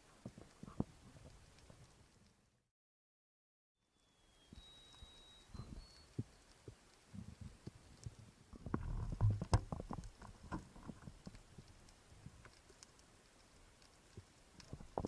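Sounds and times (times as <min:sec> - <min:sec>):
low underwater knocks and rumbling: 0:08.6 - 0:11.3.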